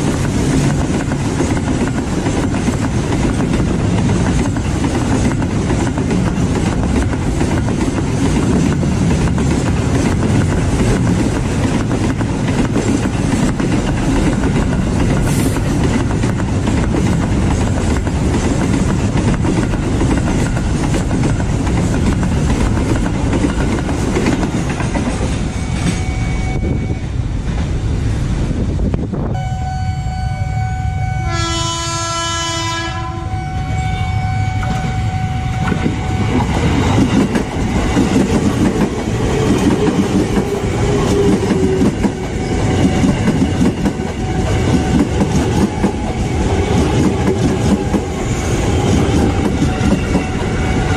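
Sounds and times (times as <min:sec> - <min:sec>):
freight train clattering past: 0:00.0 - 0:29.4, 0:31.0 - 0:50.9
electric commuter train rumbling: 0:00.0 - 0:50.9
train horn: 0:29.3 - 0:36.5.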